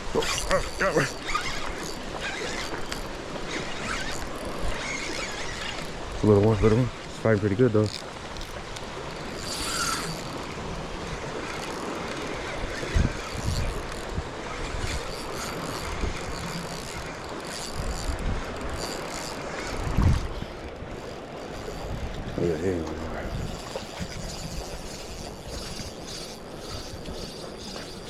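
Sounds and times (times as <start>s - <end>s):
wind buffeting microphone: 8.6s - 28.0s.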